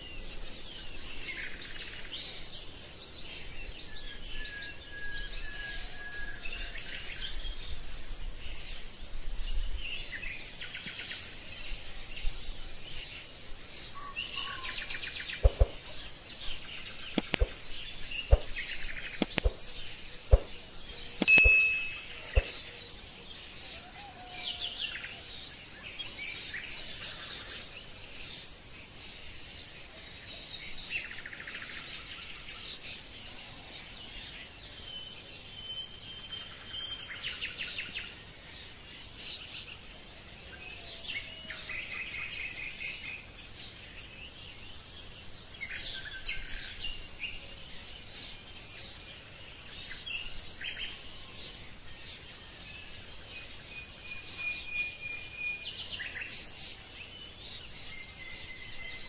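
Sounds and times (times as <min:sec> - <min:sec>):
birds chirping and singing: 0:00.0 - 0:59.0
steady hiss: 0:25.6 - 0:29.9.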